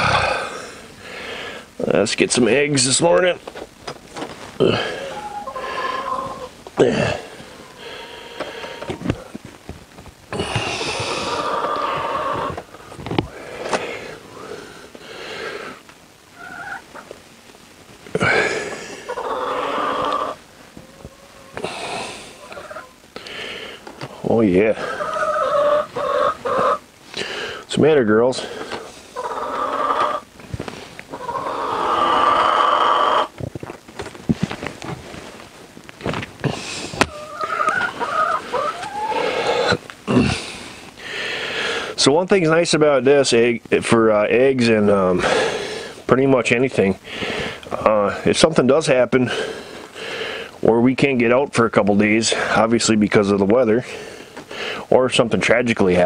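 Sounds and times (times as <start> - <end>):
hens clucking: 2.4 - 17.2, 18.2 - 35.3, 36.0 - 50.8
hens squawking: 4.2 - 9.5, 10.3 - 17.2, 18.2 - 30.4, 31.0 - 33.4, 36.4 - 42.0
hen wavering call: 4.8 - 6.6.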